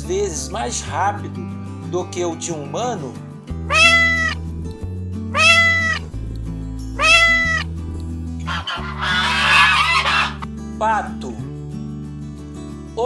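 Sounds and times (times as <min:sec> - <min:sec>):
background music: 0:00.0 - 0:11.7
cat meowing: 0:03.7 - 0:04.4, 0:05.3 - 0:06.1, 0:07.0 - 0:07.7, 0:08.5 - 0:10.4.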